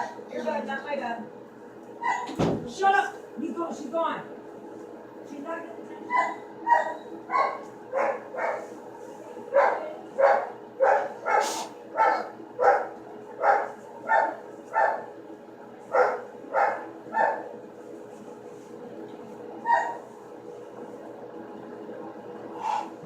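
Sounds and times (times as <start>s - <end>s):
faint hum: 0.0s - 23.0s
dog barking: 6.1s - 8.7s, 9.5s - 15.1s, 15.9s - 17.5s, 19.6s - 20.0s.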